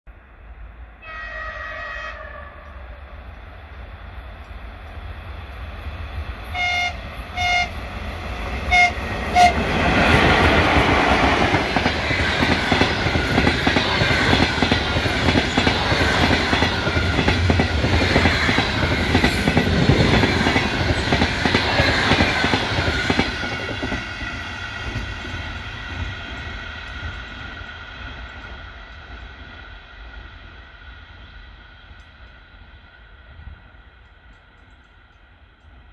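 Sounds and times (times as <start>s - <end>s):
locomotive horn blasts: 1.0s - 2.8s, 6.5s - 7.8s, 8.7s - 9.6s.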